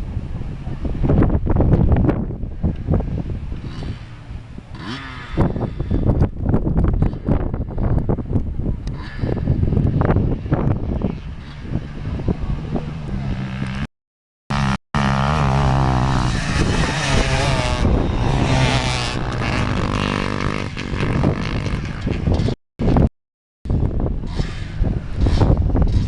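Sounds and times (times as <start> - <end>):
dirt bike engine revving: 3.1 - 6.2, 14.5 - 22.6, 24.2 - 26.0.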